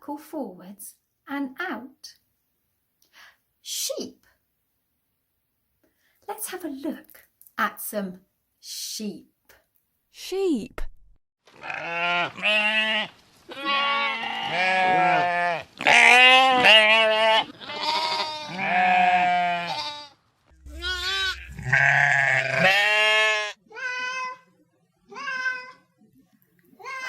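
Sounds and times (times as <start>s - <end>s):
sheep bleating: 11.5s - 24.5s, 25.1s - 25.9s.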